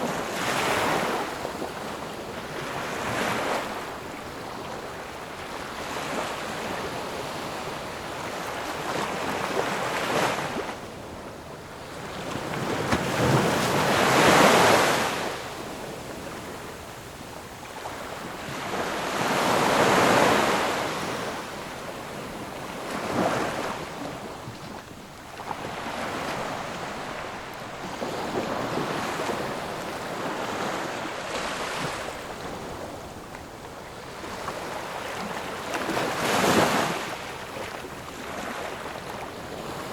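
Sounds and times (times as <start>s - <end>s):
waves breaking: 11.9s - 16.4s, 17.8s - 39.9s.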